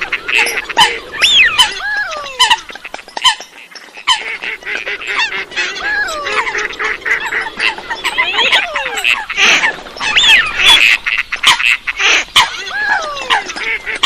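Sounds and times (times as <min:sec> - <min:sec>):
waterbirds honking and squawking: 0:00.0 - 0:14.0
long falling whistles: 0:01.1 - 0:01.6.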